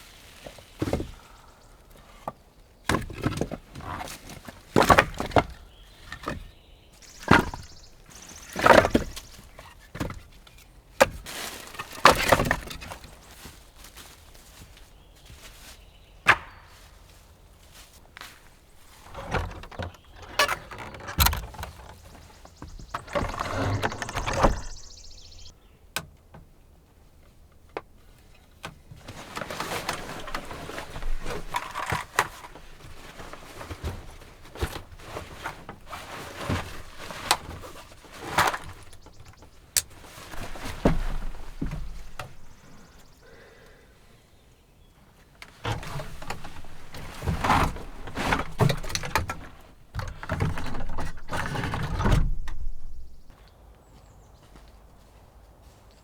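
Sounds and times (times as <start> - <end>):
rustling: 0.0 - 2.3, 2.9 - 25.5, 28.0 - 43.7, 45.1 - 56.0
objects knocking and clunking: 2.2 - 13.3, 18.8 - 26.1, 28.6 - 43.2, 45.4 - 53.3.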